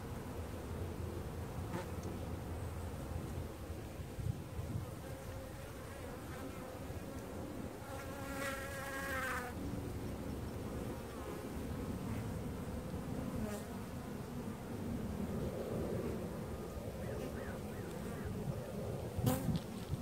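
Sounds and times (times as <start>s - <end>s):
single bee buzzing close: 7.8s - 9.6s, 19.2s - 20.0s.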